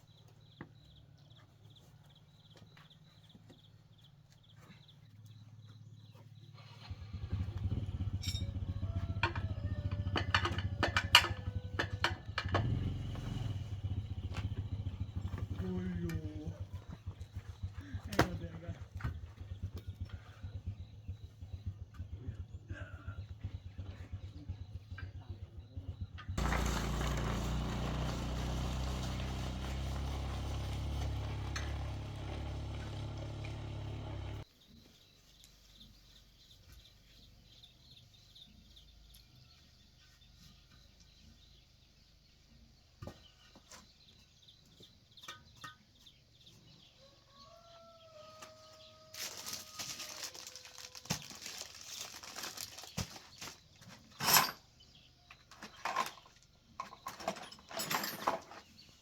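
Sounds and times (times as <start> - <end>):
motorbike engine running: 6.9 - 34.4
chicken calling faintly: 47.0 - 51.2.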